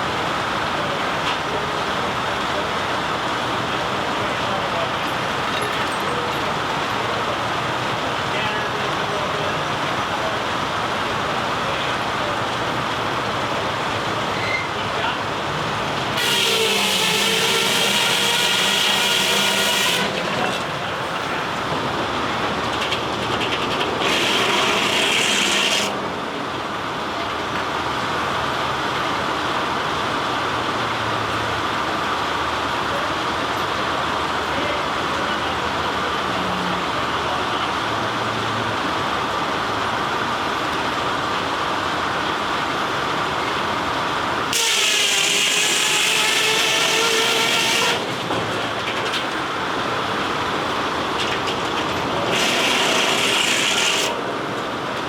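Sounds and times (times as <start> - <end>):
sawmill saw cutting wood: 15.0 - 21.8, 23.2 - 26.1, 44.5 - 49.2, 51.2 - 54.3
steam whistle blowing: 16.2 - 20.3, 44.5 - 48.1.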